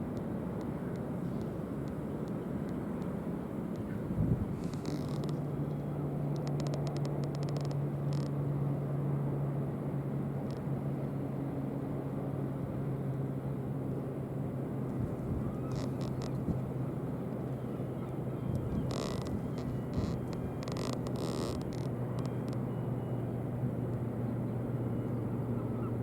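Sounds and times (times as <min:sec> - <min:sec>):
low engine hum: 0:00.0 - 0:26.0
outdoor background noise: 0:00.0 - 0:26.0
faint clicks: 0:00.1 - 0:08.3, 0:14.9 - 0:16.7, 0:18.5 - 0:22.6.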